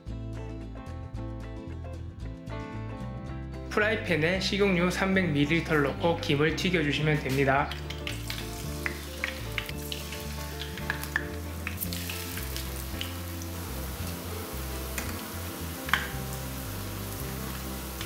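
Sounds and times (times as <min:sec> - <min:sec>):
deep-frying sizzle with pops: 0:07.8 - 0:18.0.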